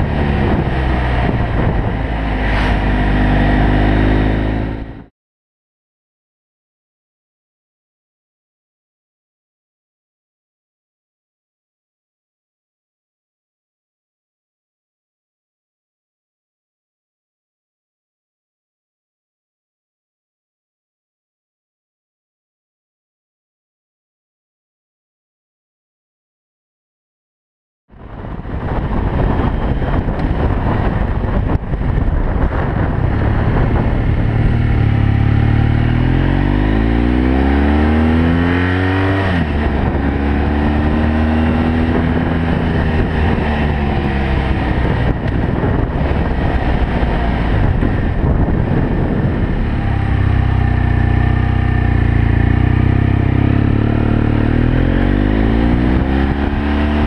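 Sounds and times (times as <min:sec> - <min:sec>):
motorcycle engine accelerating: 0:00.0 - 0:05.1, 0:27.9 - 0:57.0.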